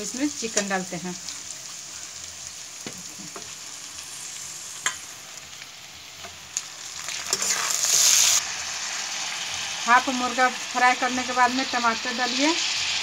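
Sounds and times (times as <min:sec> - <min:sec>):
chicken sizzling in hot oil: 0:00.0 - 0:13.0
onions and peas sizzling in oil: 0:00.0 - 0:13.0.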